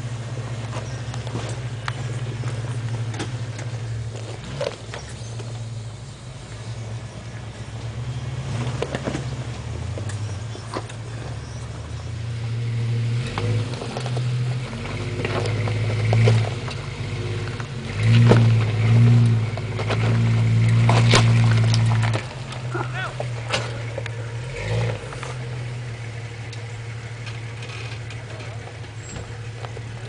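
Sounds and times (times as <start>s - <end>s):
off-road vehicle engine revving: 0.0s - 30.0s
knocks and clunks: 17.4s - 24.2s, 27.2s - 30.0s.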